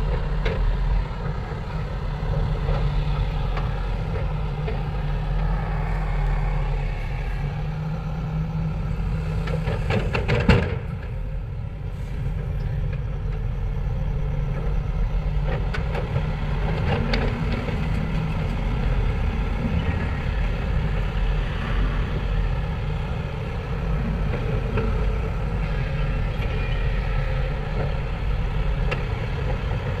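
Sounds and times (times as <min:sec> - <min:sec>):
heavy diesel engines running: 0:00.0 - 0:30.0.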